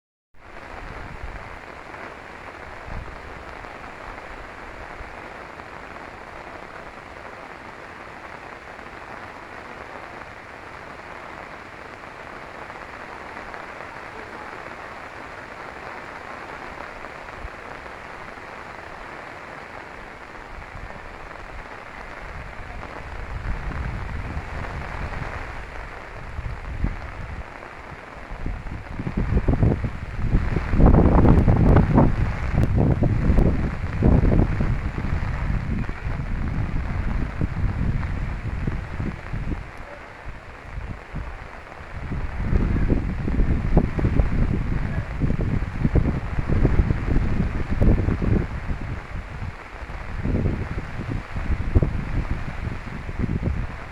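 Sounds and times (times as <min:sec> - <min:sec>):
rain falling on a river: 0:00.4 - 0:53.9
wind buffeting microphone: 0:20.3 - 0:53.9.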